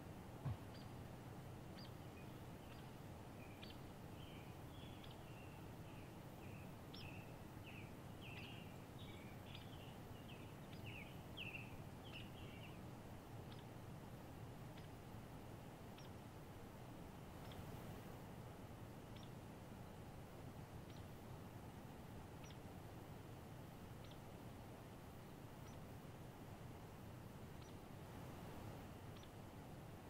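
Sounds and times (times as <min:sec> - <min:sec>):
low thump: 0:00.4 - 0:00.7
songbird chirping: 0:00.4 - 0:13.8, 0:14.6 - 0:15.1, 0:15.8 - 0:16.3, 0:17.3 - 0:17.7, 0:19.1 - 0:20.0, 0:20.8 - 0:21.2, 0:22.3 - 0:22.7, 0:23.9 - 0:25.9, 0:27.5 - 0:27.9.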